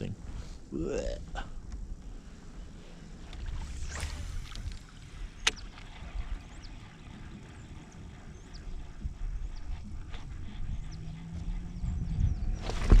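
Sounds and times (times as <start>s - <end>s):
steady low rumble: 0.0s - 13.0s
sharp click: 5.4s - 5.6s.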